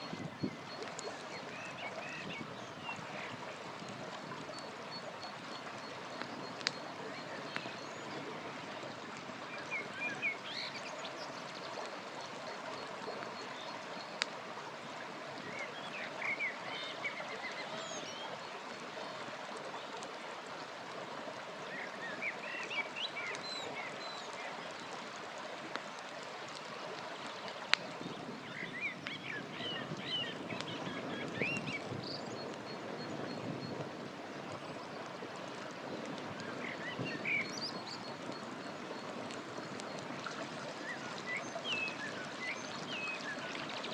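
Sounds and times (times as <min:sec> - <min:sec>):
campfire popping: 0:00.0 - 0:08.4, 0:25.6 - 0:42.9
songbirds chirping: 0:00.0 - 0:08.9, 0:09.5 - 0:43.9
river running: 0:00.0 - 0:43.9.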